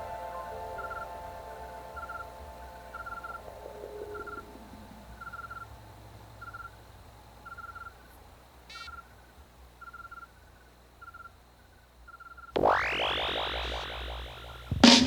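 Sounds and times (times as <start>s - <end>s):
insect-like chirping trills: 0.8s - 1.2s, 1.9s - 14.8s
dub effect sweep: 12.6s - 15.0s
low hum: 12.6s - 15.0s.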